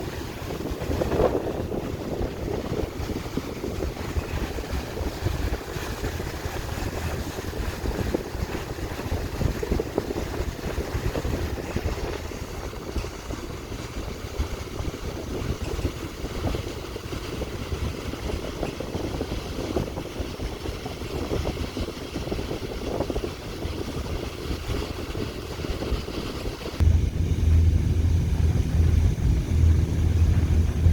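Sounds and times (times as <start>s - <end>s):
boat engine drone: 0.0s - 18.4s, 26.4s - 30.9s
water rushing: 0.0s - 18.4s, 24.4s - 30.9s
wind: 0.0s - 30.9s.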